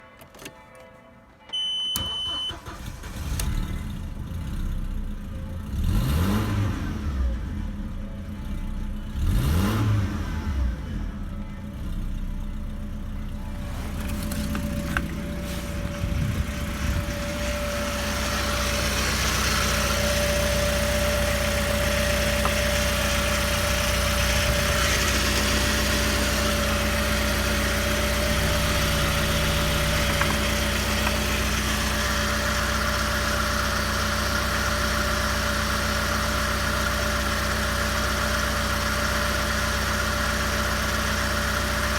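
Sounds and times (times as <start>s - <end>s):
car engine starting and idling: 1.5s - 41.9s
constant whine: 10.9s - 35.8s.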